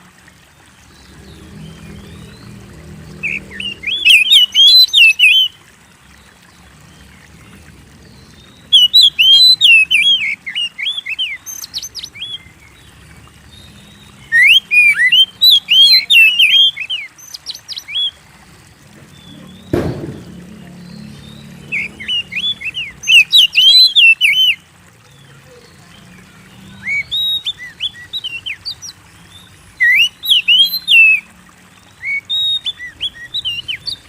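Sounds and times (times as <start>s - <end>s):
bird singing whistled phrases: 3.2s - 5.6s, 8.7s - 12.4s, 14.2s - 18.1s, 21.7s - 24.6s, 29.8s - 31.3s, 32.0s - 34.0s.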